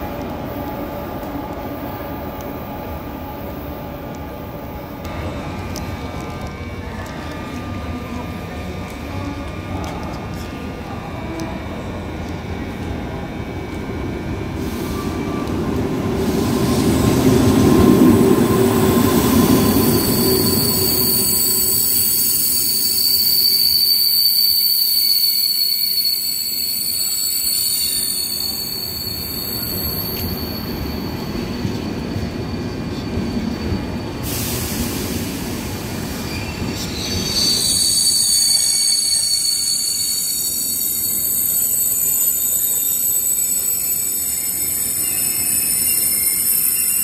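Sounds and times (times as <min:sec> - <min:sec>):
high wheel squeal: 0:19.5 - 0:34.6, 0:36.2 - 0:47.0.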